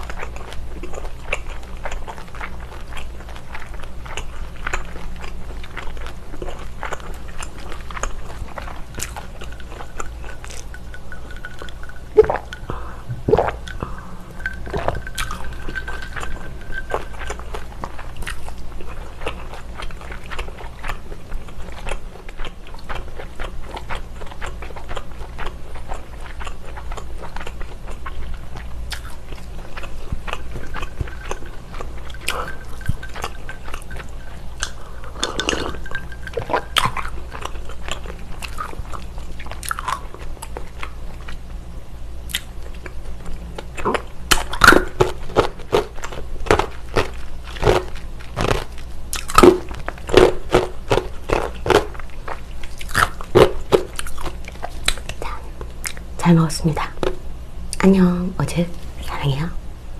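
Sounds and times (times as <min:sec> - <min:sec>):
person chewing food: 0:00.0 - 0:41.5, 0:42.2 - 0:56.1
person drinking and swallowing: 0:11.3 - 0:17.0, 0:34.6 - 0:36.7.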